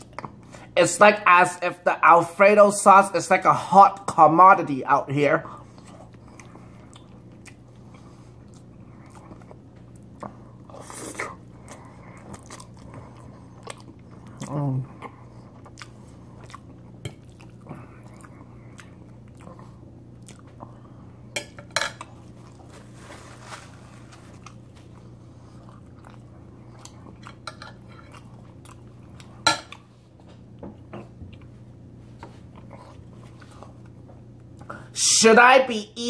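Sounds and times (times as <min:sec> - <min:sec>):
chewing and mouth sounds: 0:00.0 - 0:00.7, 0:05.5 - 0:21.0, 0:24.3 - 0:30.0
steady low hum: 0:00.0 - 0:36.0
napkin rustling: 0:22.6 - 0:24.4.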